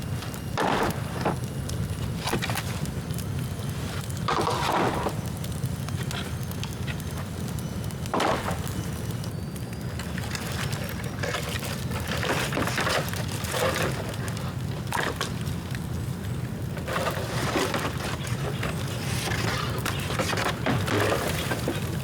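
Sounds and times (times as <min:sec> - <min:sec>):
bonfire crackling: 0:00.0 - 0:22.0.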